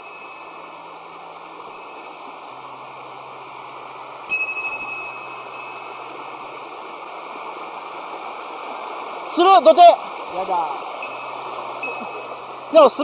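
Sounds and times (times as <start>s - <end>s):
small metal bell ringing: 0.0s - 0.7s, 1.7s - 2.2s, 4.3s - 6.2s, 11.0s - 12.5s
waterfall rushing: 0.0s - 13.0s.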